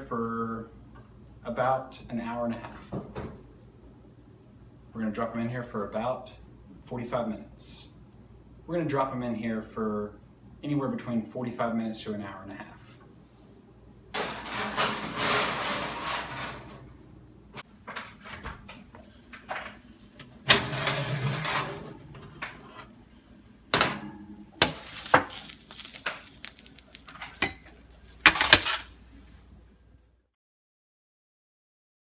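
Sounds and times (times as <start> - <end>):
pans and utensils clanking: 14.2 - 17.0, 17.6 - 23.0, 23.7 - 28.9.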